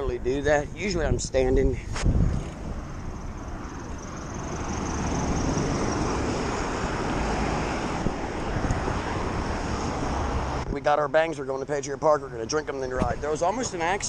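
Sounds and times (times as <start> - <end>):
wind rushing over microphone: 0.0 - 10.9.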